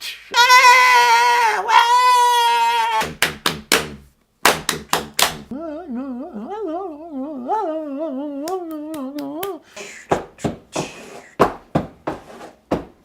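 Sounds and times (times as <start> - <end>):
warbling vocal tone: 5.5 - 9.9
man making vocal noises: 5.5 - 11.1.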